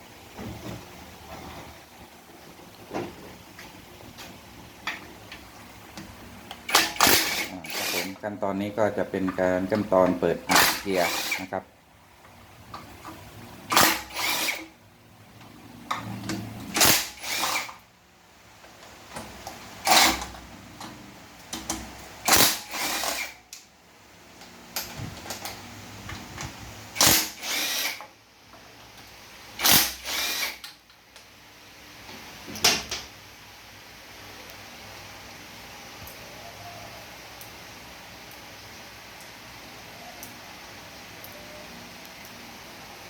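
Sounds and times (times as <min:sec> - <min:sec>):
power driver spinning: 0:06.6 - 0:11.6, 0:13.6 - 0:14.7, 0:29.6 - 0:30.6.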